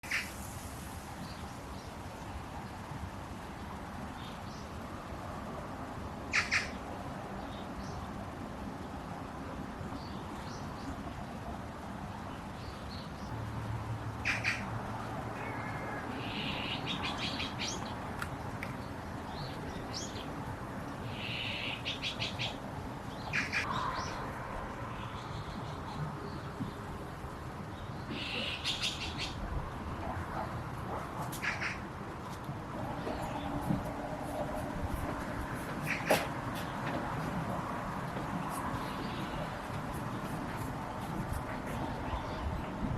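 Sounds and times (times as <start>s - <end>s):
background noise: 0.0s - 42.9s
birds chirping: 15.4s - 29.5s, 32.8s - 42.9s.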